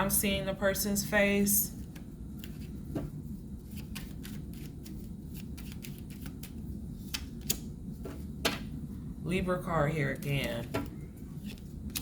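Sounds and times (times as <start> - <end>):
cards shuffling: 1.9 - 3.1, 3.7 - 8.6, 10.7 - 12.0
low hum: 6.4 - 12.0.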